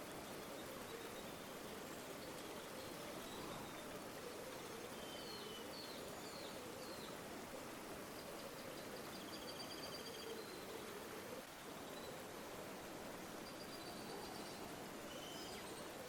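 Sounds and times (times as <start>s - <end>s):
songbird chirps and trill: 0.0s - 7.2s, 13.5s - 16.0s
river water flowing: 0.0s - 16.0s.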